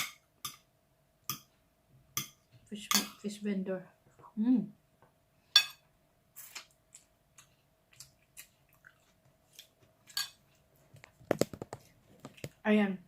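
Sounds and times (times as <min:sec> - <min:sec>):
chewing: 0:06.4 - 0:10.7.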